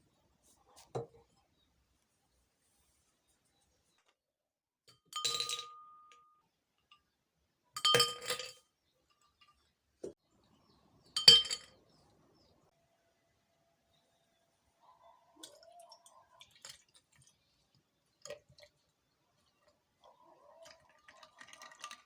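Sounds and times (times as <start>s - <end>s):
glass clinking: 5.0s - 6.4s, 7.8s - 8.6s, 11.2s - 11.9s.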